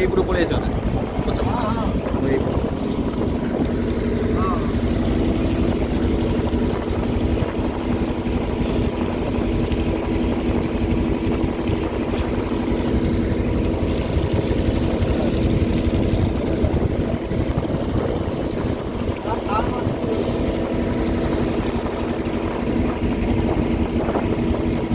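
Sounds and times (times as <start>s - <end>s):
boat engine running: 0.0s - 24.9s
low rumble: 0.0s - 24.9s.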